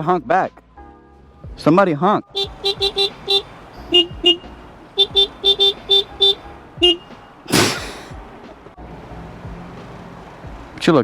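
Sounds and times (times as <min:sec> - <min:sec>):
vehicle horn short beeps: 0:02.4 - 0:07.2.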